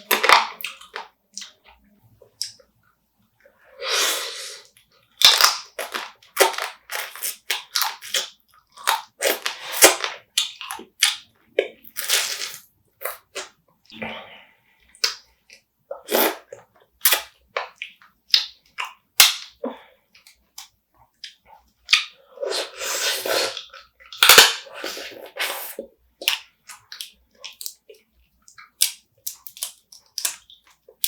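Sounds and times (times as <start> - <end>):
wet chewing and sucking: 3.8 - 14.0, 20.2 - 31.0
crab shell cracking and crunching: 28.8 - 30.7.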